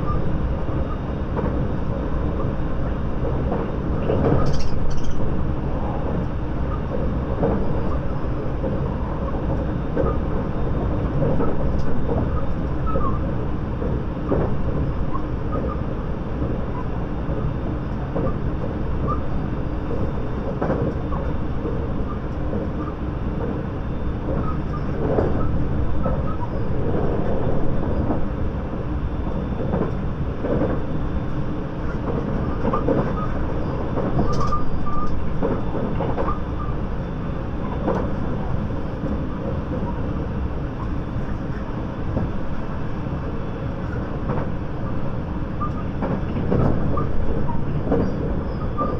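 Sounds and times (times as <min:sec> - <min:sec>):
train wheels rumbling on rail: 0:00.0 - 0:48.9.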